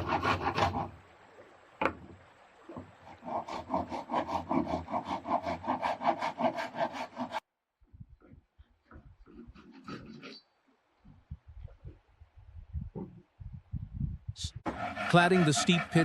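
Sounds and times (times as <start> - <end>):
handsaw cutting wooden plank: 0.0 - 0.9, 3.1 - 7.4, 9.2 - 10.4, 14.7 - 16.0.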